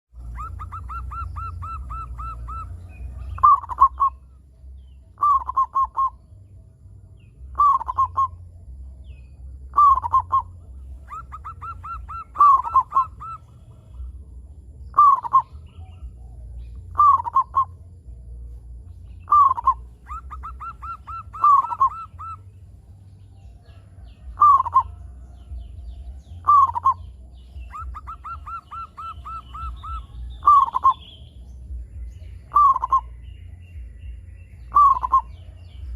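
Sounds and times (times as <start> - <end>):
steady low hum: 0.1 - 35.9
dove cooing: 0.2 - 4.4, 5.2 - 6.2, 7.5 - 8.4, 9.6 - 17.8, 19.2 - 22.7, 23.5 - 31.2, 32.0 - 33.2, 34.6 - 35.9.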